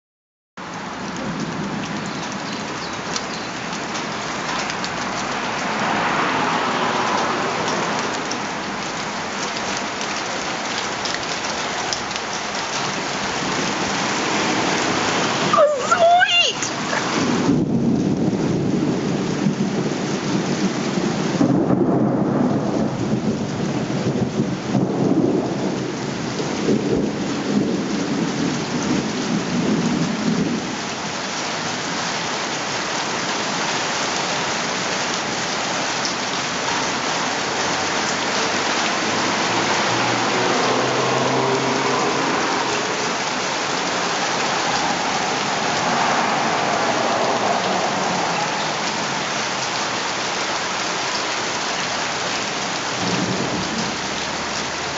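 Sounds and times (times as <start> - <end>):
heavy rain pouring: 0.6 - 54.9
thunder rumbling: 16.7 - 30.8, 52.9 - 54.9.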